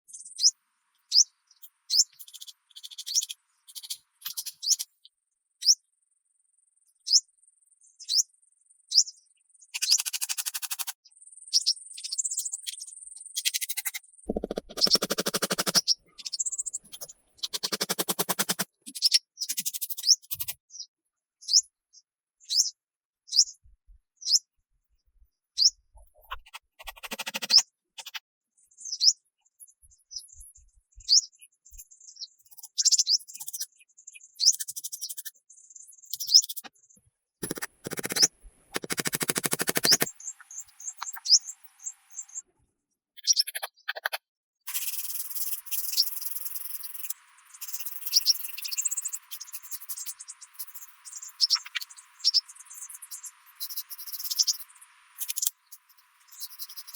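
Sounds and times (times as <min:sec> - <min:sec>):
small bird chirping: 0:00.1 - 0:05.8, 0:07.0 - 0:08.3, 0:08.9 - 0:24.5, 0:25.5 - 0:42.5, 0:43.1 - 0:56.9
scratchy rasping bursts: 0:14.3 - 0:15.9, 0:16.9 - 0:18.8, 0:37.4 - 0:40.1.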